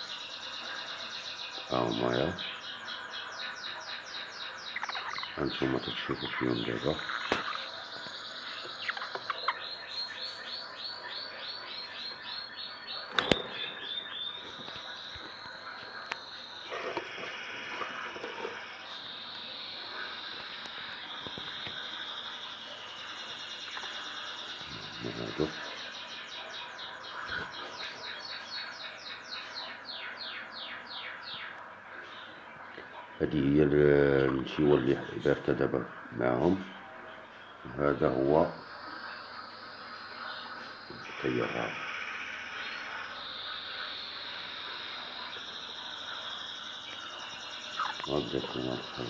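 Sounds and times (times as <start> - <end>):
chicks chirping: 1.6 - 3.0, 4.4 - 22.7, 23.5 - 29.8, 39.3 - 49.0.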